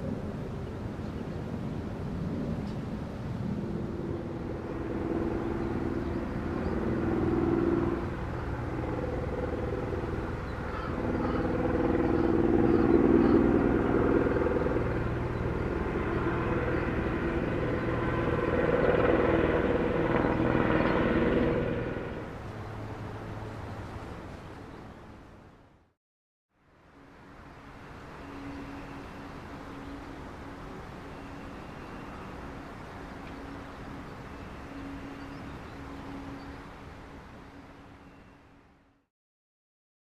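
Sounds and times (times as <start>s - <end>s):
vehicles passing: 0.0s - 25.8s.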